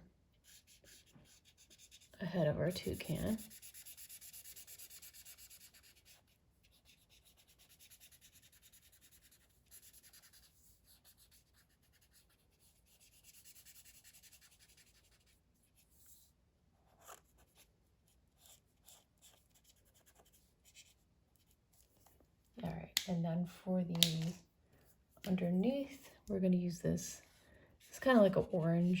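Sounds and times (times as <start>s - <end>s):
marker scribbling on paper: 0.4s - 16.2s.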